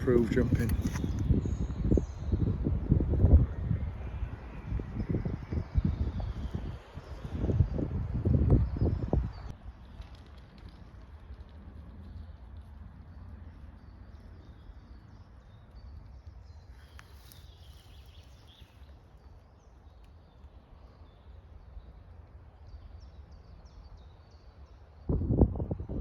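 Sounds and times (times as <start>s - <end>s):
birds chirping: 13.2s - 24.8s.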